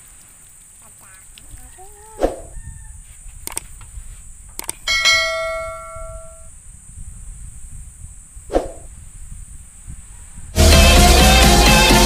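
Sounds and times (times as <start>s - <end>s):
quick mouse clicks: 3.4s - 3.7s, 4.6s - 4.8s
notification bell ding: 4.9s - 6.5s.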